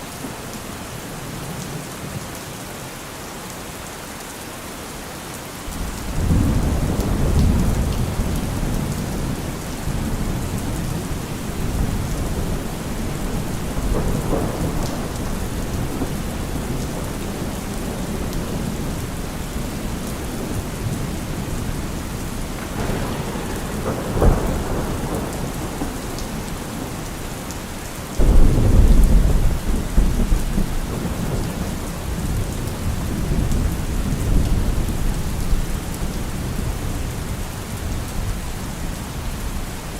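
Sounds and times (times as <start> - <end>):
heavy rain on a car roof: 0.0 - 39.9
thunder rumbling: 5.7 - 37.0.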